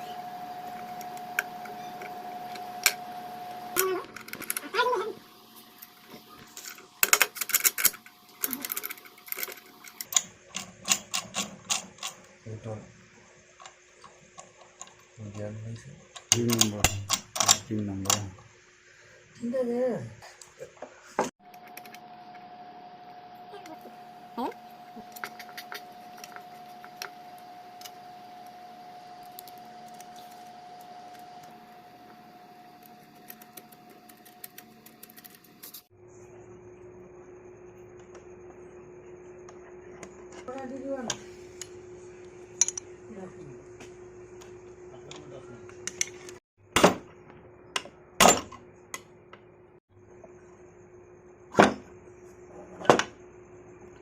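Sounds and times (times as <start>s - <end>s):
steady hum: 0.0s - 46.4s.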